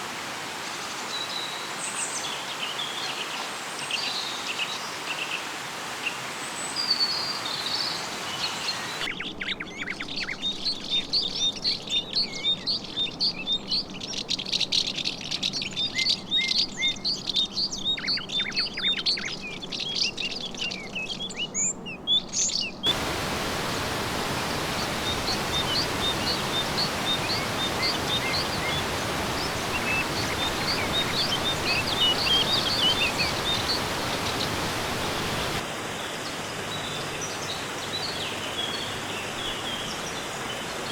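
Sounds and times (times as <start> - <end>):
birds chirping: 22.9 - 35.6
steady hiss: 22.9 - 35.7.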